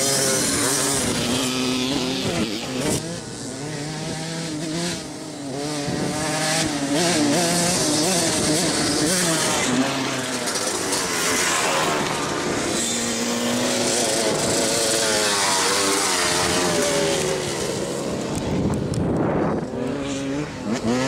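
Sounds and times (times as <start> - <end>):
dirt bike engines revving: 0.0 - 21.0
rush of noise: 7.6 - 21.0.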